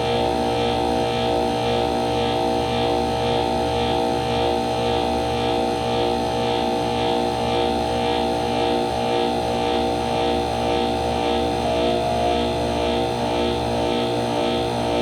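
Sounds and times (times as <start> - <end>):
hvac unit humming: 0.0 - 15.0.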